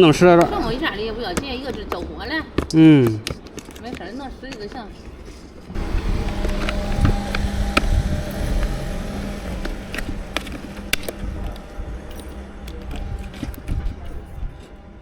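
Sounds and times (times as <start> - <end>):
low rumbling background noise: 5.1 - 15.0.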